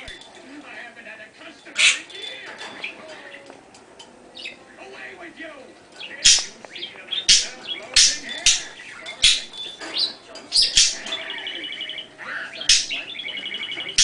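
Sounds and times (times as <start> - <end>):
bird trilling chatter: 1.7 - 3.5, 4.3 - 4.6, 6.0 - 14.0
bird chirping sharply: 6.0 - 14.0.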